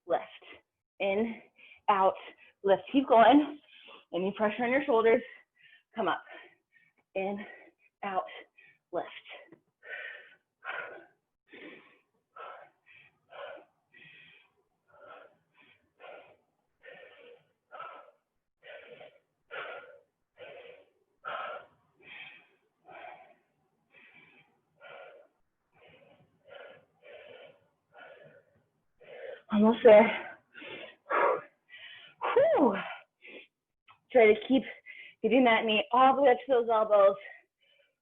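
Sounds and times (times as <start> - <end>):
person breathing hard: 5.3 - 29.5, 30.2 - 32.2.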